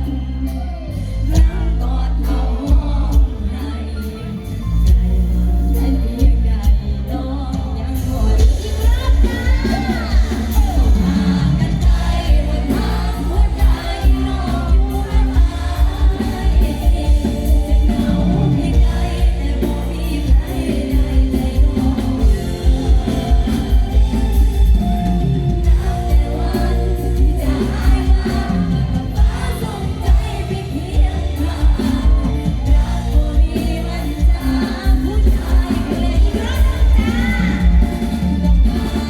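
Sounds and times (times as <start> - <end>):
live band music: 0.0 - 39.0
woman singing: 0.0 - 39.0
heavy pulsing bass beat: 8.3 - 39.0.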